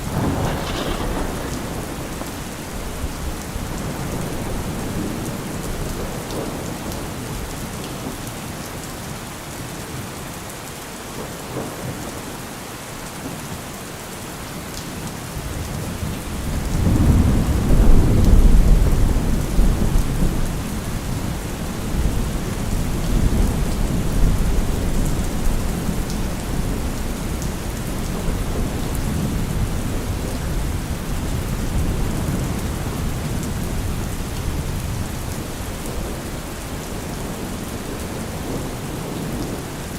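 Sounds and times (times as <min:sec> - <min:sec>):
thunder rolling: 0:00.0 - 0:06.7, 0:16.0 - 0:39.7
rain falling: 0:00.0 - 0:39.9.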